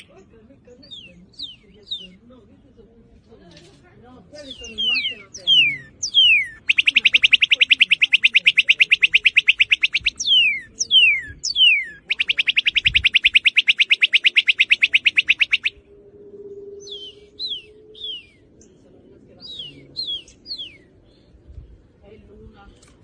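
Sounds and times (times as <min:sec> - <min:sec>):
bird singing whistles and trills: 0:00.8 - 0:02.2, 0:04.4 - 0:18.8, 0:19.4 - 0:21.0.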